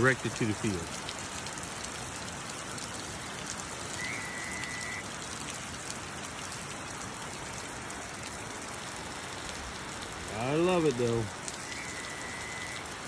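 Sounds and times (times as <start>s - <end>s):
heavy rain pouring: 0.0s - 13.0s
faint high steady tone: 2.6s - 5.8s, 10.3s - 12.9s.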